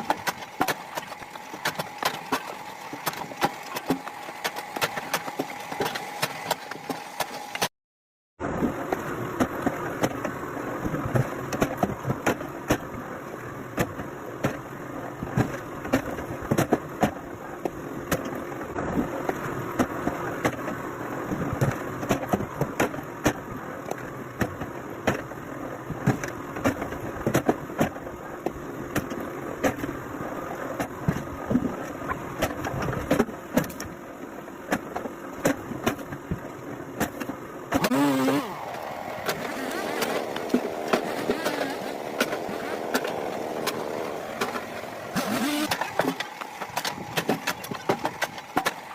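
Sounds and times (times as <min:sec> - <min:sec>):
log splitter engine running: 0:37.7 - 0:48.9.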